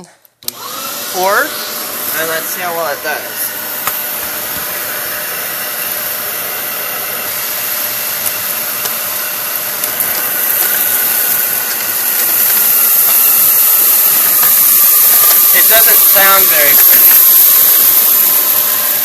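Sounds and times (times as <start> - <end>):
vacuum cleaner running: 0.0 - 19.0
nozzle scratching floor: 0.9 - 19.0.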